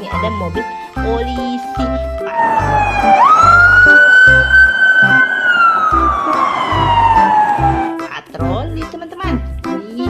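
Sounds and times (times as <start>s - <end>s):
children's music with steady beat: 0.0s - 10.0s
police siren wailing: 2.2s - 8.0s.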